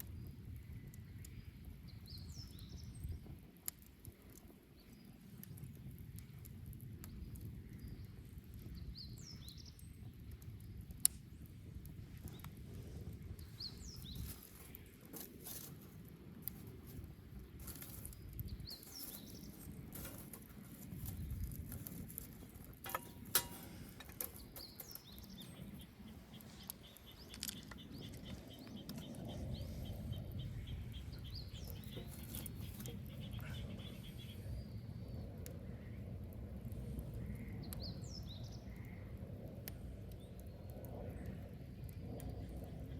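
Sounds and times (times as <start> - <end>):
fire crackling and popping: 0.0 - 42.9
low rumble of flames: 0.0 - 42.9
birds chirping: 12.2 - 15.2, 17.4 - 22.3, 22.9 - 36.0.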